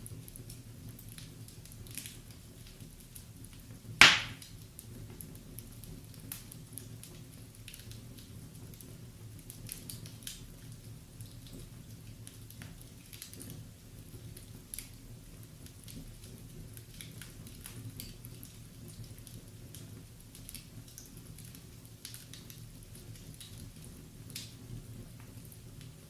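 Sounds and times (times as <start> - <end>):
wood fire crackling: 0.0 - 26.0
sharp pop from fire: 4.0 - 4.5.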